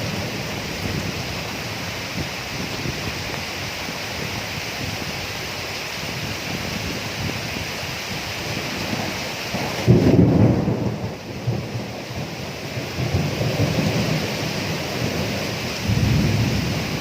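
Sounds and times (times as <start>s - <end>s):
steady rain: 0.0s - 17.0s
thunderclap: 8.5s - 17.0s.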